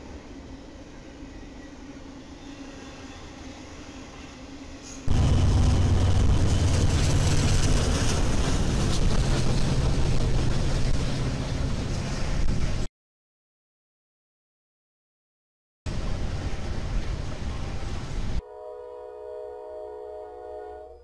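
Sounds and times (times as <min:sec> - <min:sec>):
diesel locomotive engines droning: 0:00.0 - 0:12.8, 0:15.9 - 0:21.0
freight train rumbling: 0:00.0 - 0:12.9, 0:15.9 - 0:21.0.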